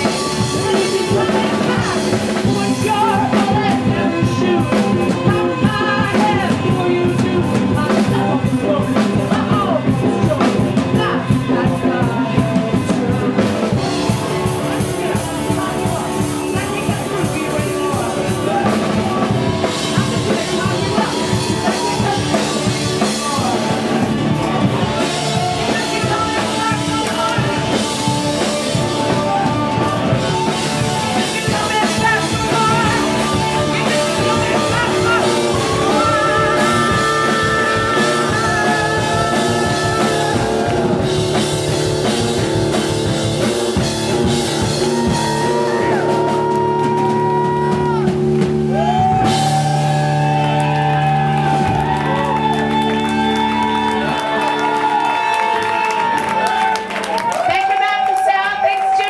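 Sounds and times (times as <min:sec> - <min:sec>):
person singing: 0:00.0 - 0:41.7
drums beating: 0:00.0 - 0:59.0
rock band playing: 0:00.0 - 0:59.0.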